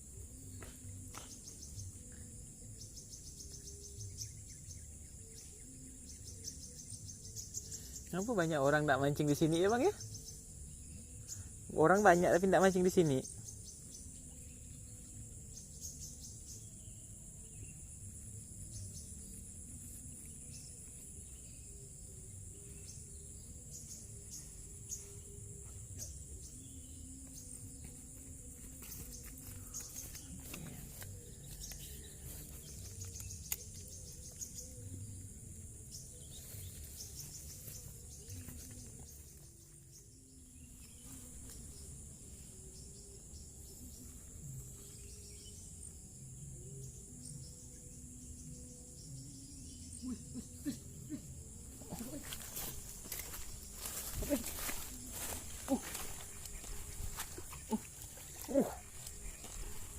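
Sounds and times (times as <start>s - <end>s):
crickets trilling: 0.0s - 59.9s
small ticks: 28.6s - 34.6s.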